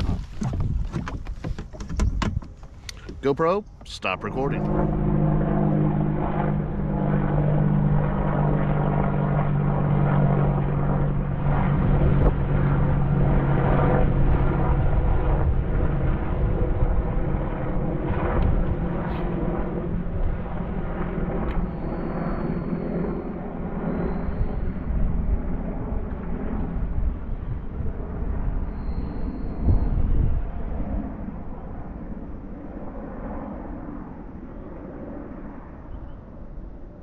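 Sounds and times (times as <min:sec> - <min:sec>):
engine drone: 0:02.7 - 0:25.4.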